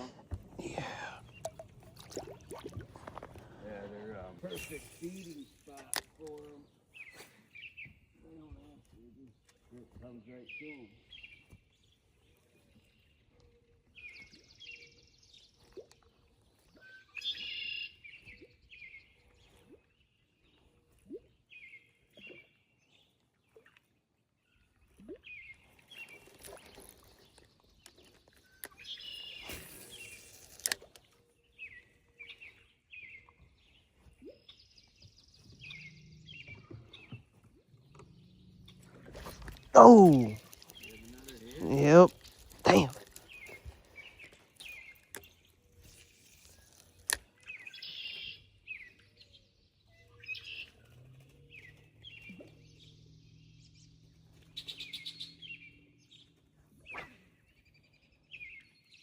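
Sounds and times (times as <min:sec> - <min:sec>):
songbirds chirping faintly: 0:00.0 - 0:59.0.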